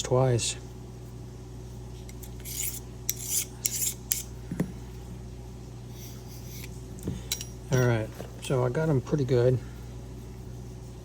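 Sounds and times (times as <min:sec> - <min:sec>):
scissor blade rasping strokes: 0:02.1 - 0:04.3.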